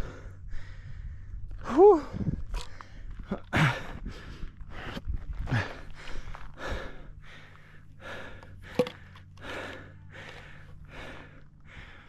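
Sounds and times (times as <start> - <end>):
person breathing hard: 0.0 - 12.0.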